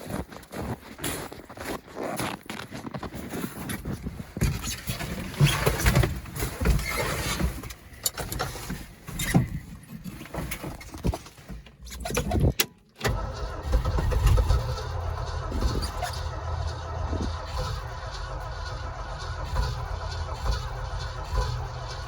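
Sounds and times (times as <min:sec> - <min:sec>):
engine cranking on starter: 0:11.7 - 0:22.0.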